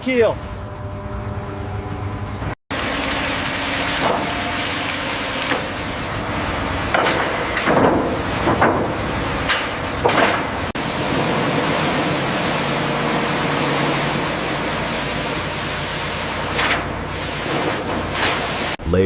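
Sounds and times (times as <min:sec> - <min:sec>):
pressure washer jet spraying: 0:10.8 - 0:18.8.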